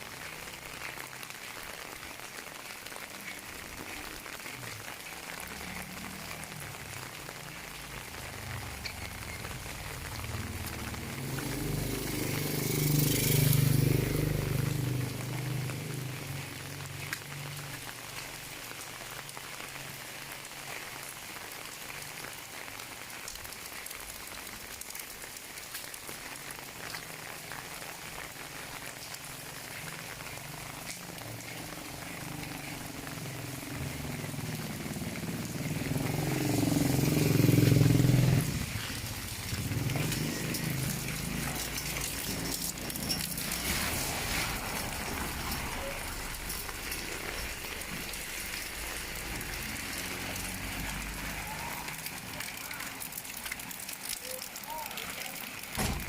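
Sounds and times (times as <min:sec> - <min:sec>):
steady rain falling: 0:00.0 - 0:56.0
engine passing by: 0:10.0 - 0:17.2, 0:29.5 - 0:53.1.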